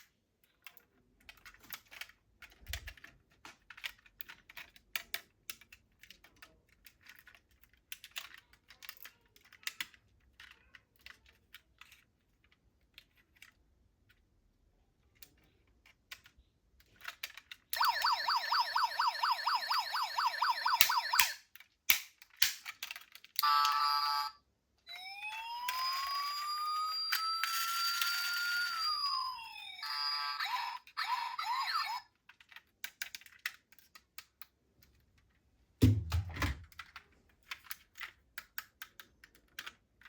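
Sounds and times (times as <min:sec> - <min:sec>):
plastic toy cars clattering: 0:00.0 - 0:17.7, 0:21.5 - 0:23.8, 0:32.1 - 0:35.5, 0:36.4 - 0:40.0
toy electronic siren warbling: 0:17.8 - 0:21.4, 0:23.4 - 0:32.0.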